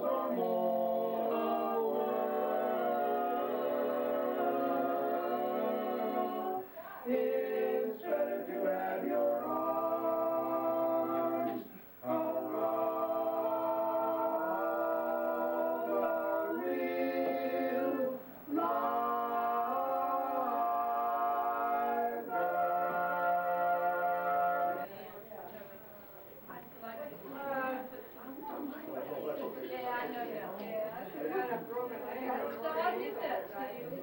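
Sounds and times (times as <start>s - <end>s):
vocal group singing unaccompanied: 0.0s - 25.0s.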